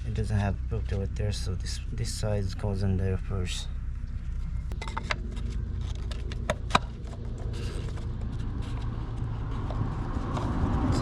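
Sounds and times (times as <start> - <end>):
steady low hum: 0.0 - 11.0
plastic parts clicking and tapping: 4.7 - 7.5.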